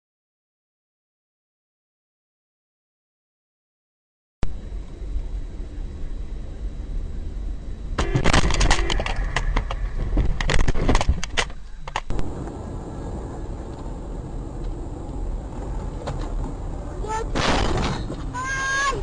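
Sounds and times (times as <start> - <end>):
car noise: 7.2 - 19.0.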